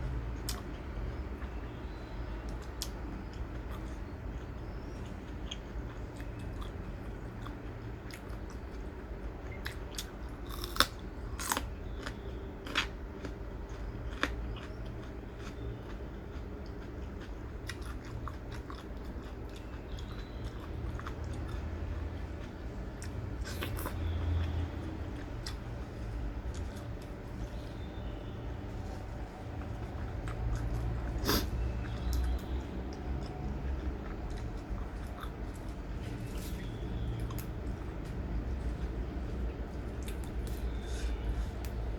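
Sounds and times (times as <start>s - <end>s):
person chewing crunchy food: 0.4s - 41.9s.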